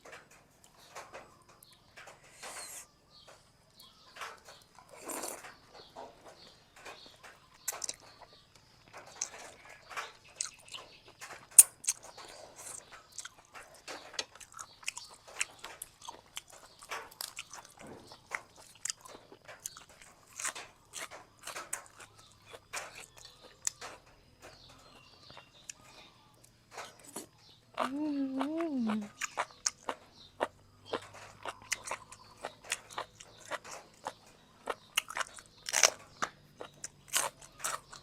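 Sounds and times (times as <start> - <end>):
chewing and mouth smacks: 7.0 - 24.0, 25.2 - 38.0.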